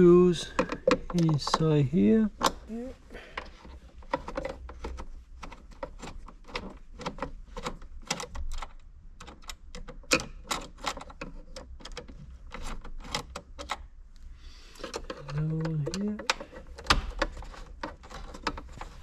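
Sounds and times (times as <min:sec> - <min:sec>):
metal and plastic knocking: 0:00.4 - 0:01.6, 0:03.3 - 0:13.8.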